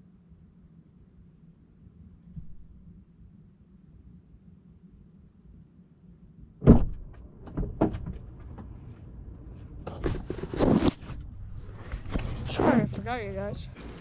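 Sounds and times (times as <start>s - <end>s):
faint low hum: 0.0s - 14.0s
loud knock: 6.6s - 8.2s.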